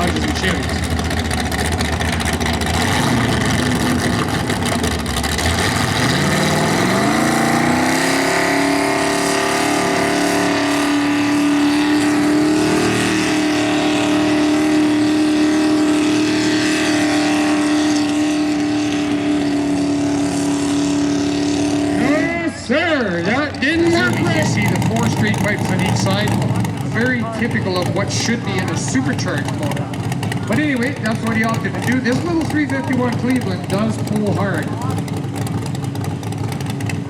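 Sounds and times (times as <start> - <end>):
tractor engine revving: 0.0 - 37.0.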